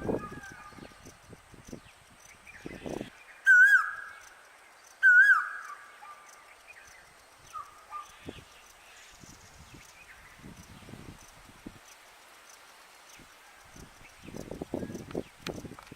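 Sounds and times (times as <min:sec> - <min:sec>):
faint bird chirping: 0:00.0 - 0:15.4
bird warbling call: 0:02.6 - 0:04.2, 0:05.0 - 0:06.3.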